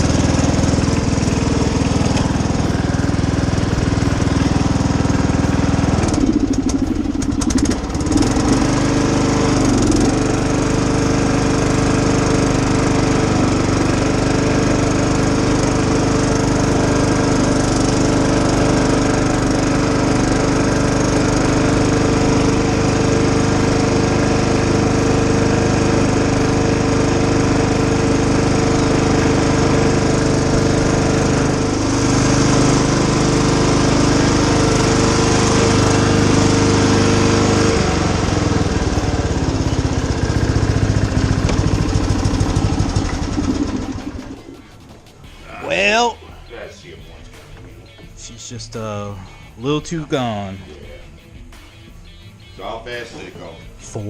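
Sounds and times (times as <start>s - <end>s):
riding lawnmower engine running: 0.0s - 54.0s.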